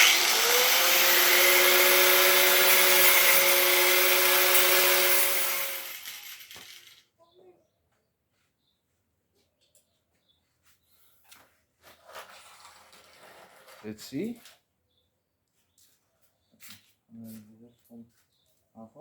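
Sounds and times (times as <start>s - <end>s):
electric power tool motor whine: 0.0s - 6.9s.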